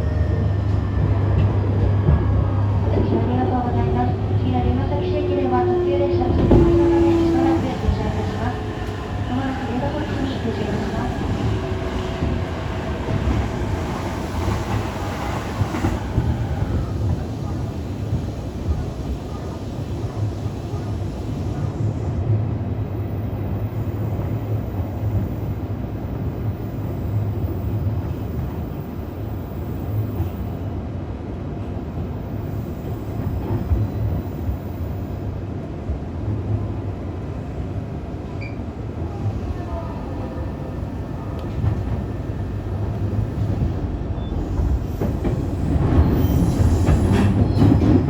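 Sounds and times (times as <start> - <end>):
wheels rumbling on rail: 0.0 - 48.0.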